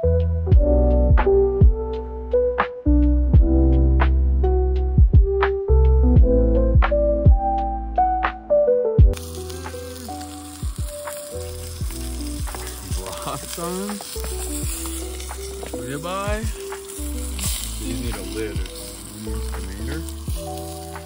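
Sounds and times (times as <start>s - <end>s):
background music with drums: 0.5s - 2.0s, 5.0s - 5.6s, 10.6s - 21.0s
sausages sizzling in a skillet: 9.2s - 21.0s.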